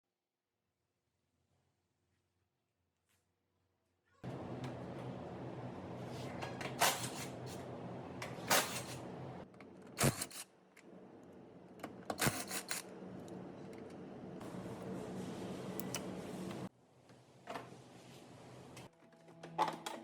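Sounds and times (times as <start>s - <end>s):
low machine hum: 4.2s - 9.5s, 10.9s - 16.7s.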